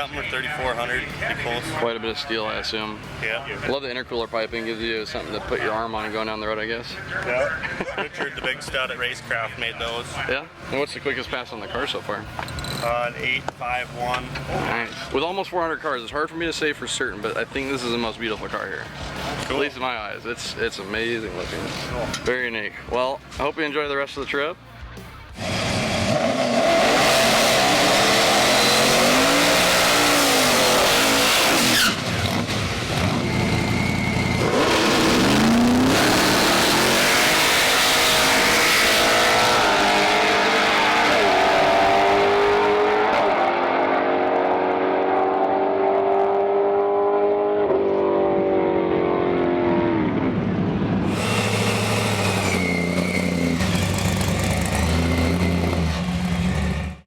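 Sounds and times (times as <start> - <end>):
drag car engine at full throttle: 25.3 - 57.0
tire squeal: 25.4 - 43.9, 51.0 - 57.0.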